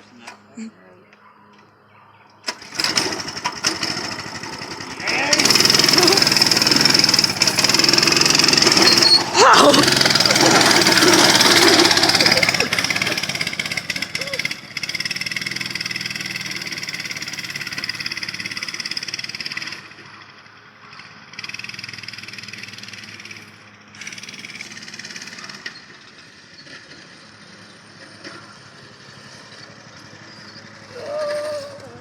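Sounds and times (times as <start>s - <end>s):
uneven engine sound: 2.3s - 32.0s
small engine running hard: 2.4s - 32.0s.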